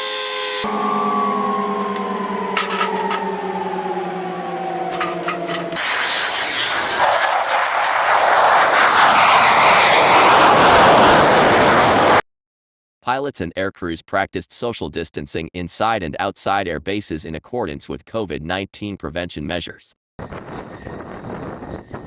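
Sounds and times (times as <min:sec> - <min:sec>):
rising whistle: 0:00.5 - 0:08.4
jet turbine whine: 0:00.6 - 0:12.2, 0:20.2 - 0:22.0
loud jet roar: 0:00.6 - 0:12.2.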